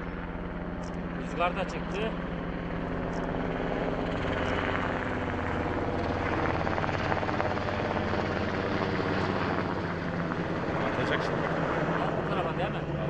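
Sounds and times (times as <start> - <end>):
helicopter engine drone: 0.0 - 13.0
helicopter rotor beating: 0.0 - 13.0.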